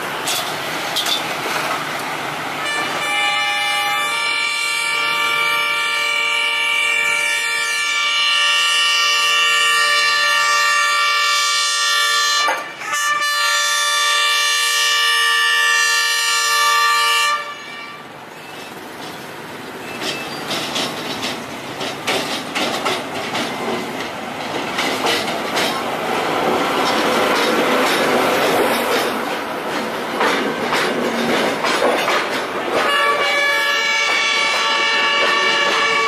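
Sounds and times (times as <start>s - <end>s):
wheels clattering over rail joints: 0.1s - 2.2s, 18.3s - 36.0s
railcar horn blast: 2.6s - 18.2s, 32.8s - 36.0s.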